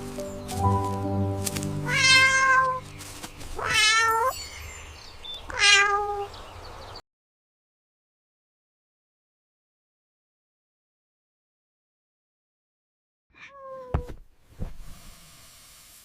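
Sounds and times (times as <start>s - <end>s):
soft background music: 0.0s - 5.2s
cat meowing: 1.9s - 2.8s, 3.6s - 4.3s, 5.5s - 6.3s, 13.4s - 14.1s.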